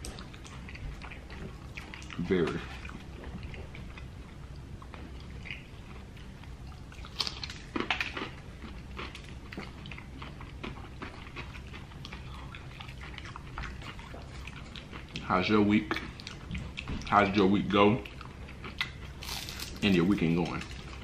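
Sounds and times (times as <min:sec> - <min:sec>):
crunching fried chicken: 0:05.3 - 0:21.0.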